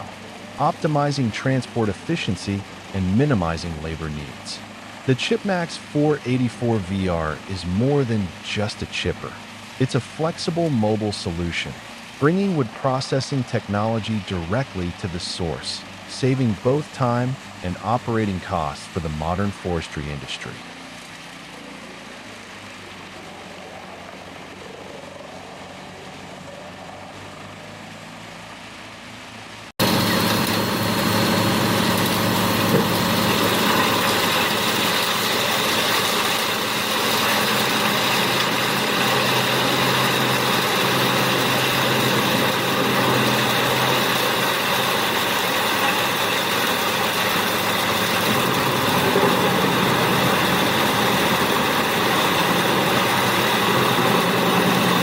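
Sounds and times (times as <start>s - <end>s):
wood chipper machinery running: 0.0s - 13.1s, 29.5s - 55.0s.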